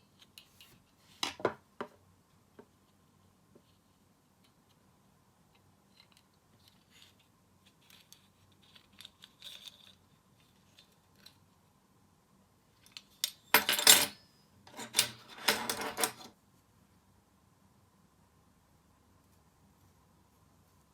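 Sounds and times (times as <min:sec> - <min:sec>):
small metal parts clinking: 0:07.8 - 0:11.4, 0:12.9 - 0:16.3.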